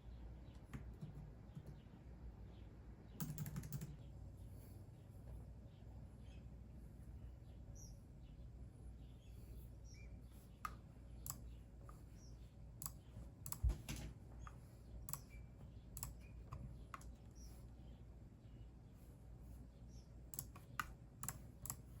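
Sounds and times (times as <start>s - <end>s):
steady low hum: 0.0s - 22.0s
faint bird chirps: 1.5s - 13.6s, 14.4s - 21.0s
computer key clicks: 3.2s - 4.0s, 12.8s - 15.4s, 16.0s - 17.2s, 20.3s - 22.0s.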